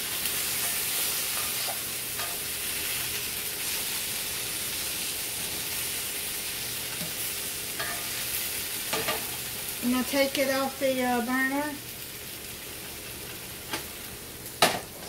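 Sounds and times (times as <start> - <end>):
food sizzling in a skillet: 0.0 - 15.0
spatula stirring food: 0.2 - 4.2.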